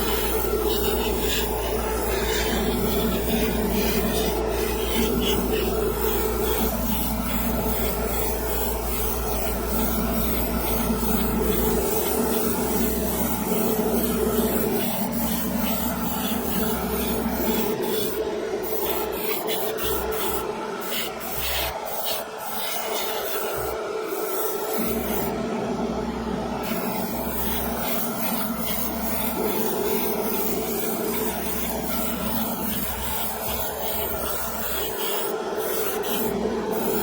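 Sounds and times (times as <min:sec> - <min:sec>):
spray gun hissing: 0:00.0 - 0:06.6.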